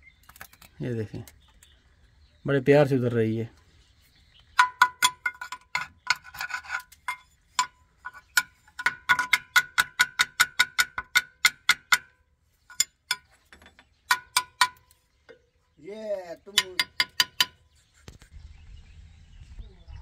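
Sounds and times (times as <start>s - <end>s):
metal-on-metal tapping: 4.6s - 15.5s, 16.5s - 17.6s.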